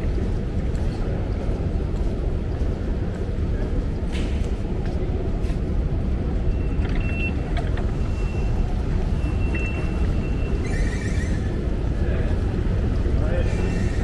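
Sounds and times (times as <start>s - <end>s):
faint high squeaks and clicks: 6.4s - 11.9s.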